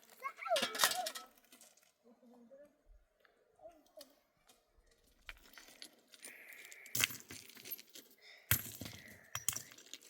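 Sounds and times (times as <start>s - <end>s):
small stones clacking: 5.1s - 10.0s.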